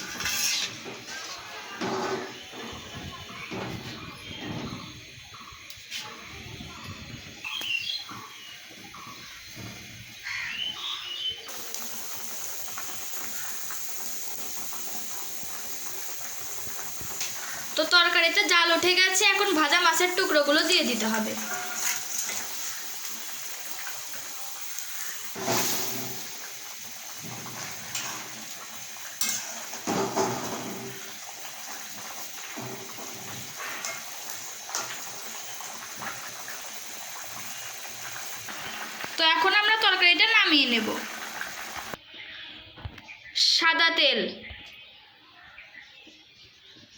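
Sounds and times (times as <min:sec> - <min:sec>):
curry bubbling and hissing in pan: 0:00.0 - 0:42.0
utensil clinking against a pot: 0:27.6 - 0:31.0, 0:32.6 - 0:35.0.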